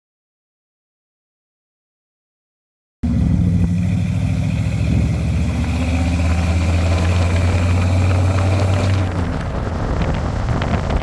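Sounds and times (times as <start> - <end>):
rough noise: 3.0 - 11.0
truck engine humming: 3.0 - 11.0.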